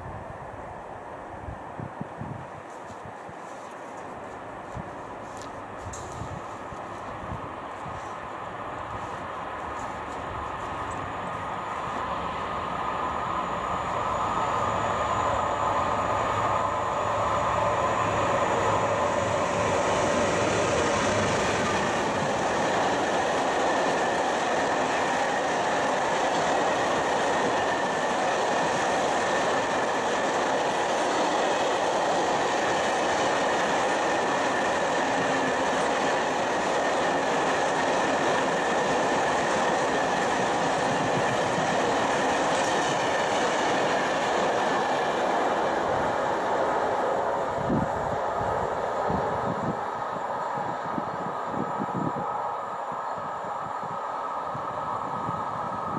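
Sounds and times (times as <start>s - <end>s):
faint high whine: 0.0s - 23.3s
freight train wheels clattering: 18.6s - 46.0s.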